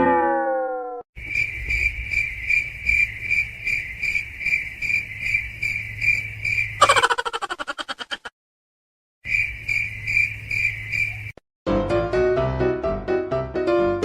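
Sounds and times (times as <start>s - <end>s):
cricket chirping: 1.2s - 8.0s, 9.2s - 11.4s.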